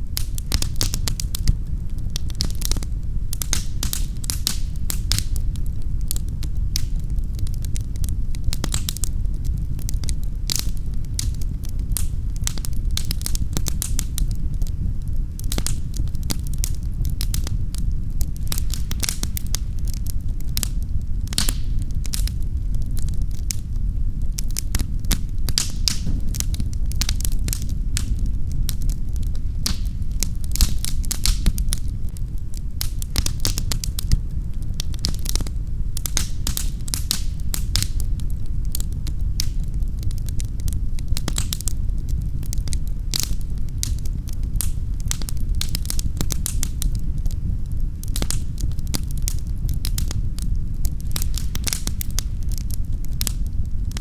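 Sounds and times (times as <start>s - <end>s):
wood fire crackling: 0.0s - 54.0s
low rumble: 25.5s - 27.0s.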